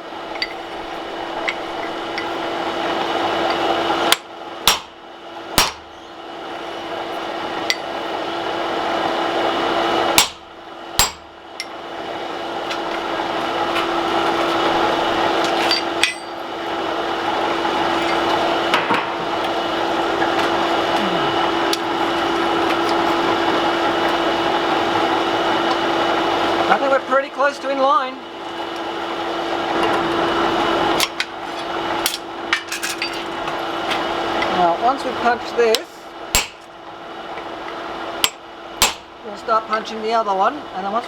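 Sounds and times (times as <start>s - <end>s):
constant low hum: 0.0s - 41.0s
hammer striking steel: 3.5s - 5.0s, 5.6s - 6.0s, 10.2s - 11.8s, 15.6s - 16.4s, 35.7s - 36.7s, 38.2s - 39.1s.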